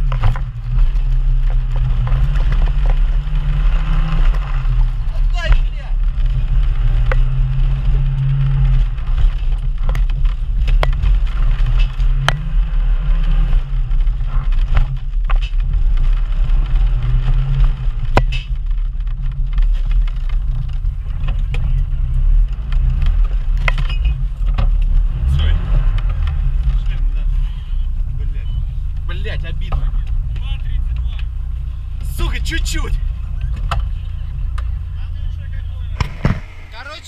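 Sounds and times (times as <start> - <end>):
off-road vehicle engine running: 0.0 - 37.0
sharp knocks: 36.0 - 36.8.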